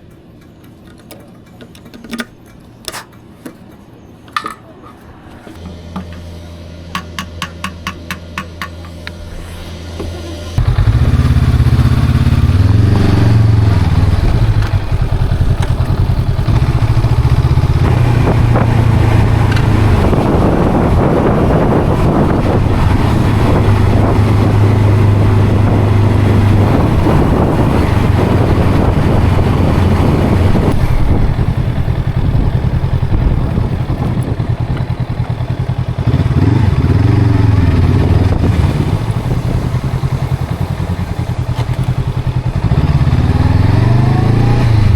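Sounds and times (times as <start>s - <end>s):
motorcycle engine revving: 8.3s - 44.9s
rushing noise: 8.8s - 15.4s.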